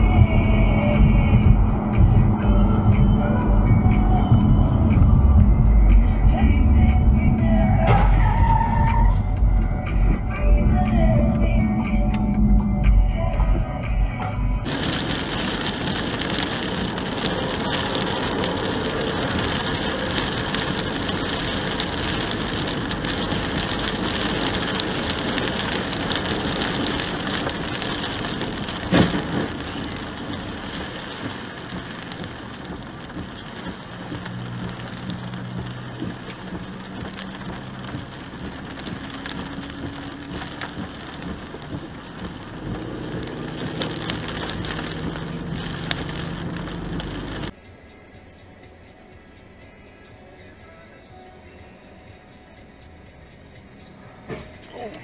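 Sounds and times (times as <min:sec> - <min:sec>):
rain and tyre spray hiss: 0:14.6 - 0:55.0.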